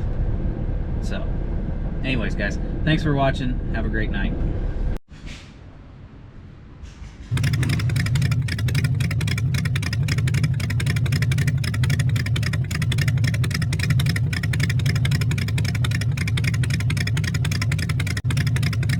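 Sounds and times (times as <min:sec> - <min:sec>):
engine with fast exhaust beat: 0:07.2 - 0:18.9.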